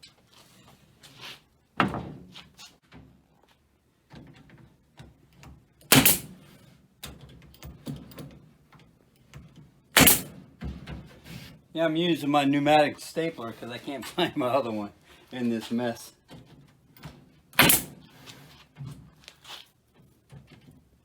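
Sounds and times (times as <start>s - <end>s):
pneumatic stapler shots: 5.9s - 6.4s, 9.9s - 10.4s, 17.6s - 18.1s.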